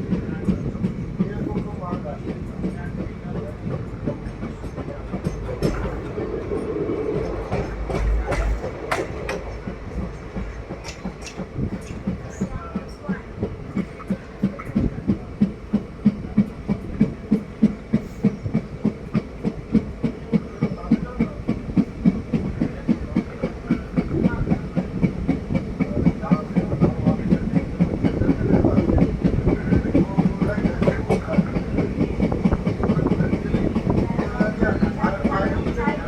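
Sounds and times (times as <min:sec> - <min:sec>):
train rumble: 0:00.0 - 0:36.0
train wheels clickety-clack: 0:00.0 - 0:36.0.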